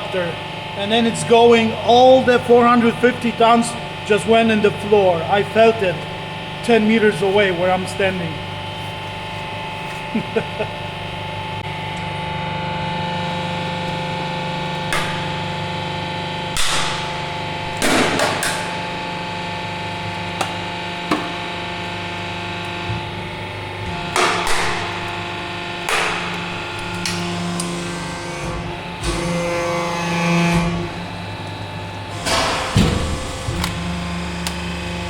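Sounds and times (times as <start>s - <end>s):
hydraulic pump humming: 0.0s - 35.0s
sharp knocks and cracks: 14.9s - 15.4s, 16.6s - 17.1s, 17.7s - 18.8s, 24.1s - 25.2s, 25.9s - 27.2s.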